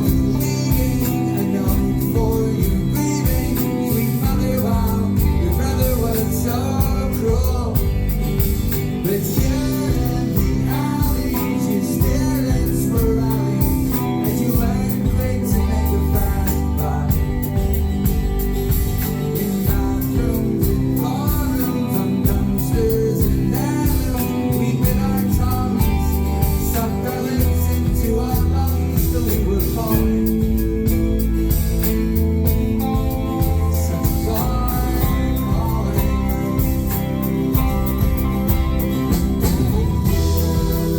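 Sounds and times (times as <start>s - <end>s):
bass: 0.0s - 40.9s
guitar: 0.0s - 40.9s
person singing: 0.0s - 40.9s
steady drum beat: 0.0s - 40.9s.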